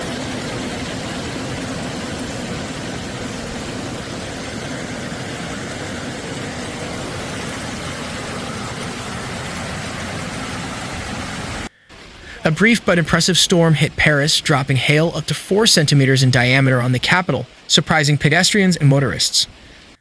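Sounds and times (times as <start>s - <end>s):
hail and heavy rain falling: 0.0s - 13.0s.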